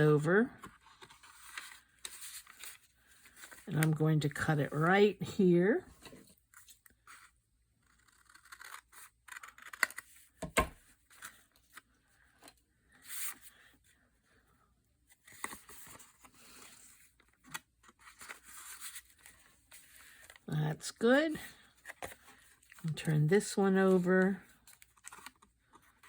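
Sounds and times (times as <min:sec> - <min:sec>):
paper rustling: 0:00.6 - 0:03.8, 0:15.2 - 0:20.4, 0:21.8 - 0:26.0
scissors snipping paper: 0:08.0 - 0:10.0.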